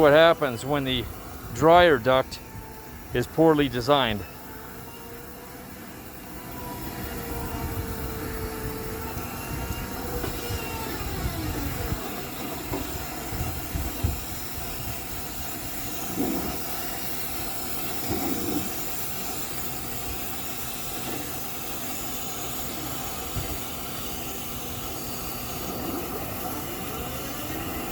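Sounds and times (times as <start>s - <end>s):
sliding whine: 0.0s - 27.9s.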